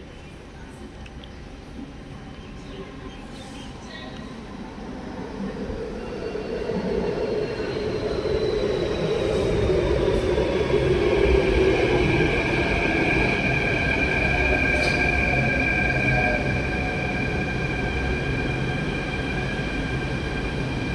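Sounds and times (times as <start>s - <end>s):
train rumbling past: 1.7s - 20.9s
high squealing train tones: 2.6s - 20.9s.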